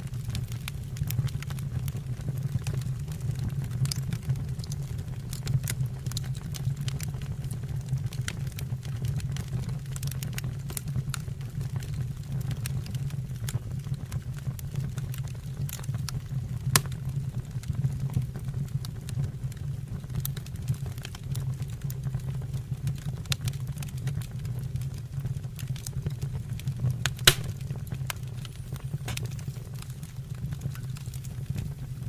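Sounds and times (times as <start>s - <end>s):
fire crackling and popping: 0.0s - 32.0s
low fire rumble: 0.0s - 32.0s.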